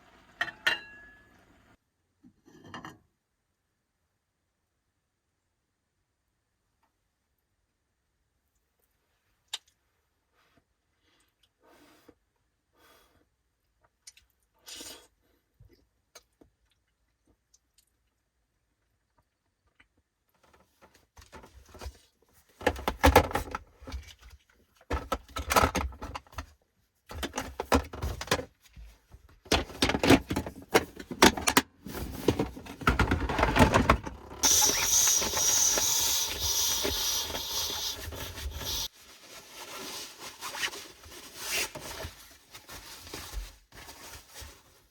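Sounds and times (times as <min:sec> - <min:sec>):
rustling and knocking of handled things: 0:20.3 - 0:44.9
steady hiss: 0:34.4 - 0:38.9.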